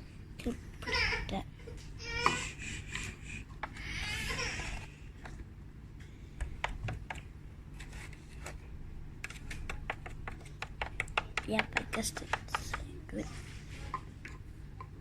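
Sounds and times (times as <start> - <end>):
light clicks and taps: 9.2 - 12.9.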